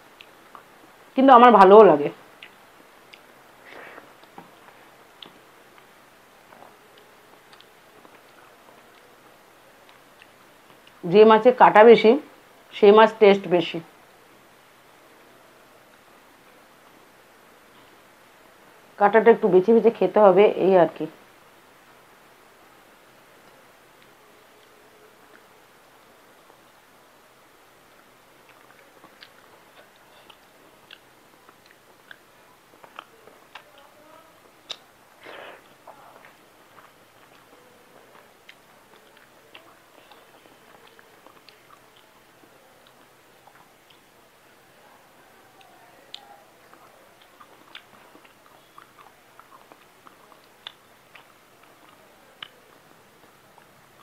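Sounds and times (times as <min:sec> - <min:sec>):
faint chewing: 0:00.1 - 0:01.0, 0:02.2 - 0:11.0, 0:23.4 - 0:26.9, 0:27.7 - 0:54.0
mouth clicks and smacks: 0:02.3 - 0:05.9, 0:28.4 - 0:33.8, 0:34.4 - 0:37.6, 0:45.6 - 0:52.9
wet mouth clicks: 0:34.6 - 0:34.9.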